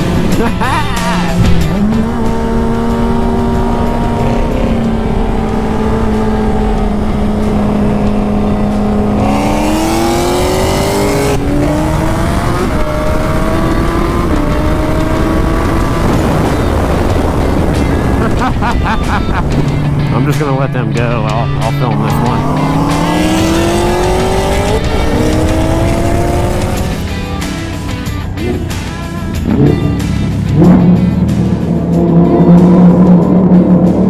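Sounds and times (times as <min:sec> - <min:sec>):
vehicle engines revving high: 0:00.0 - 0:34.0.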